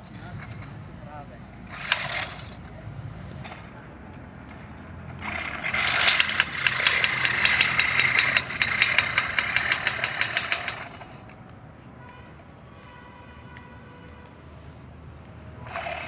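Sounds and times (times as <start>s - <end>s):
lawnmower running: 1.6s - 2.7s, 4.4s - 11.3s, 15.6s - 16.0s.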